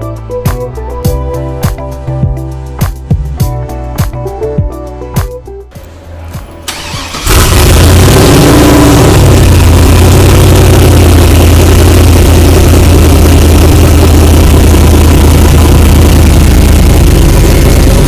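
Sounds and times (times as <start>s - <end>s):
car engine starting and idling: 5.7s - 18.0s.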